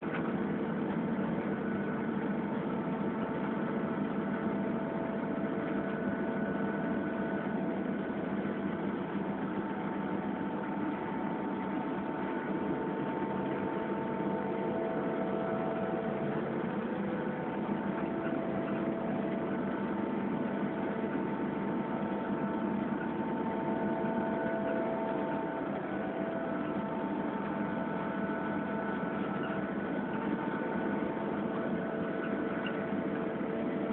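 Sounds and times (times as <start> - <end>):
diesel locomotive engine drone: 7.2 - 33.9.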